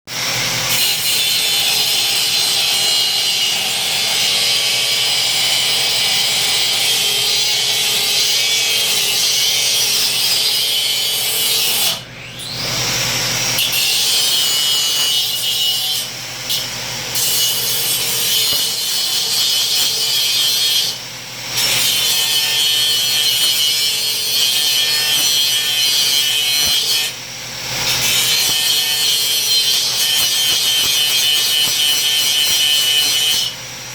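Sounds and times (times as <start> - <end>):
bandsaw cutting metal: 0.1 - 33.9.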